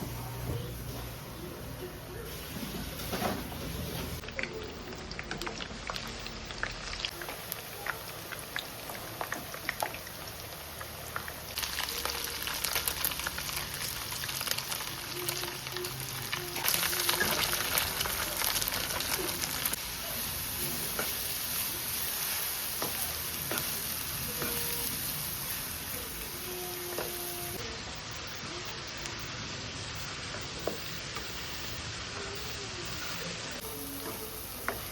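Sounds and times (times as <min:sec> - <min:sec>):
food sizzling in hot oil: 0:02.2 - 0:34.9.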